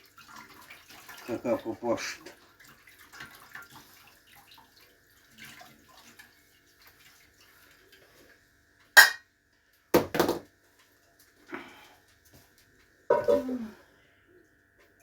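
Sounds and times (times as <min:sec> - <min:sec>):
sharp clank: 0:09.0 - 0:09.2.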